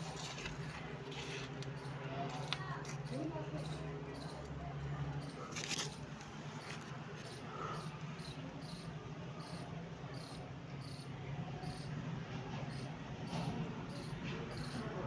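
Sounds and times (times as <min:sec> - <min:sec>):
steady low hum: 0:00.0 - 0:15.0
high-pitched insect chirping: 0:07.2 - 0:11.9, 0:13.9 - 0:14.9.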